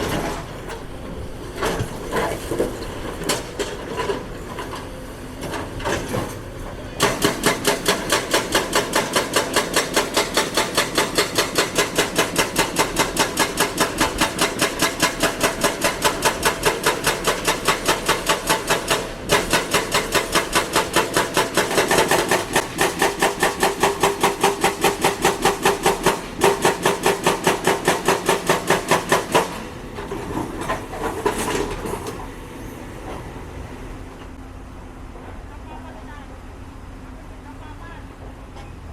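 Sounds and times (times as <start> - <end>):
excavator engine running: 0.0 - 38.9
hydraulic rock breaker hammering: 7.0 - 32.0.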